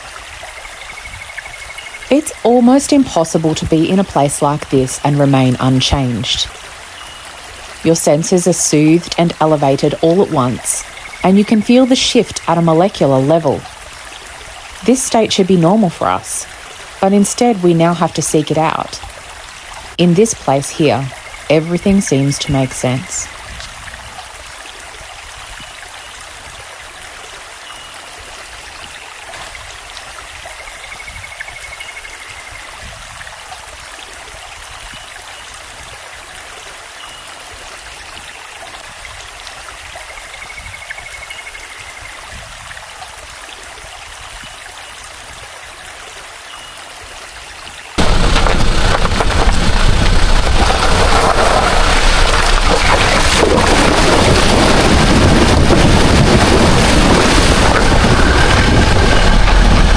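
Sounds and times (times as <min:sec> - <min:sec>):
running water rushing: 0:00.0 - 0:59.9
wind buffeting microphone: 0:48.0 - 0:59.9.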